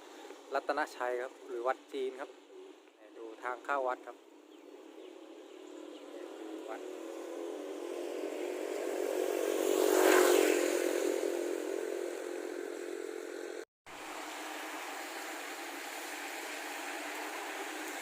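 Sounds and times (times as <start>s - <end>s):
steady engine hum: 0.0s - 18.0s
motor vehicle passing: 4.0s - 18.0s.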